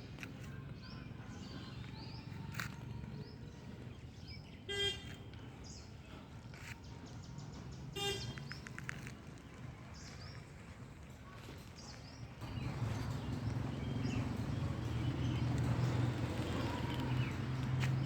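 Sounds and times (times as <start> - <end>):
birds chirping: 0.0 - 18.0
low outdoor rumble: 8.5 - 18.0.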